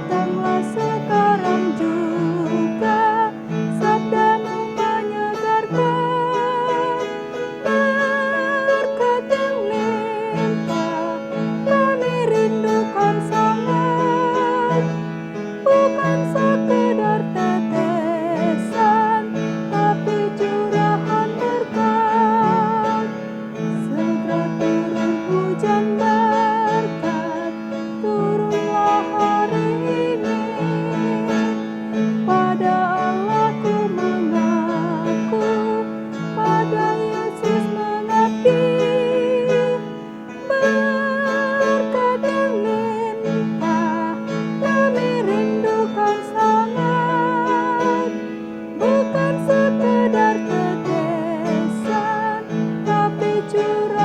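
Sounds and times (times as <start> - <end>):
piano: 0.0 - 54.0
woman singing a hymn: 0.0 - 54.0.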